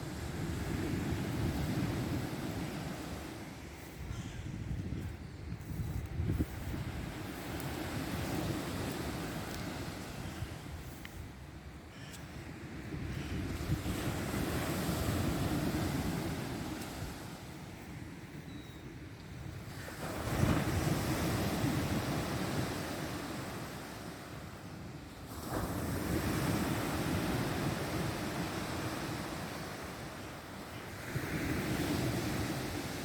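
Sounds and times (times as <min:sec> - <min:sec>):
waves breaking on shore: 0:00.0 - 0:18.5, 0:19.2 - 0:33.0.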